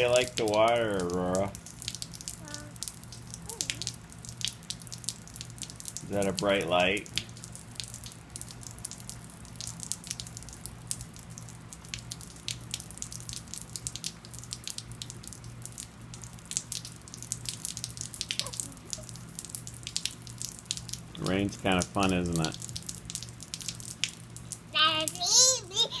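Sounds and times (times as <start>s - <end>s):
rain dripping and pattering: 0.0s - 26.0s
steady low hum: 0.0s - 26.0s.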